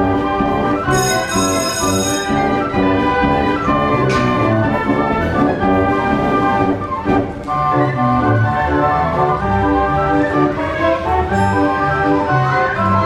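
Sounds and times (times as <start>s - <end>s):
band organ playing a tune: 0.0s - 13.0s.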